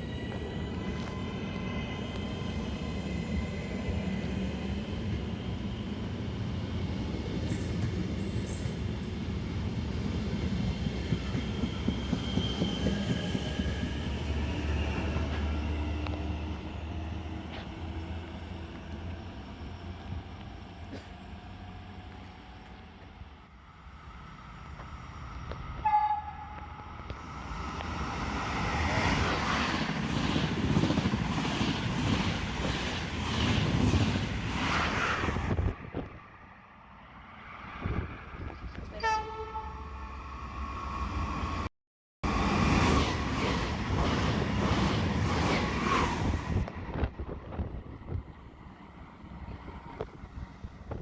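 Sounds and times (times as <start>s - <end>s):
train wheels rumbling on rails: 0.0s - 23.2s, 26.5s - 36.2s, 42.2s - 51.0s
train horn blasts: 25.8s - 26.8s, 38.9s - 40.0s.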